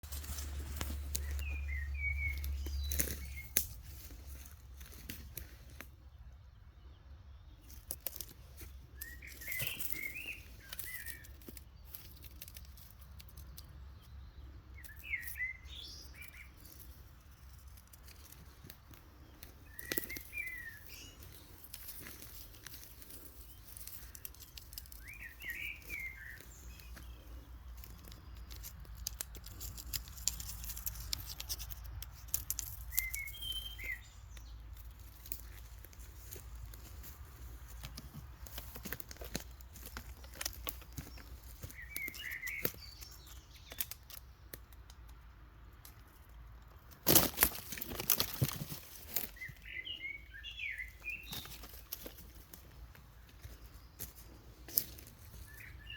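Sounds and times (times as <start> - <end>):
rustling and clicks: 7.7 - 13.8, 16.2 - 45.2.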